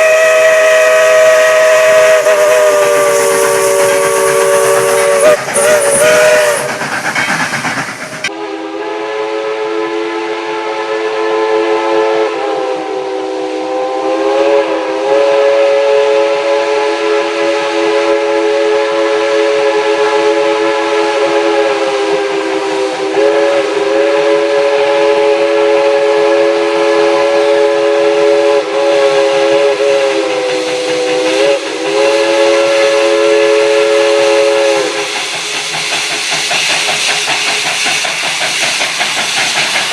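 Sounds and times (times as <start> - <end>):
hissing steam: 0.0 - 8.4, 19.6 - 39.9
steam locomotive chime whistle: 0.0 - 35.6.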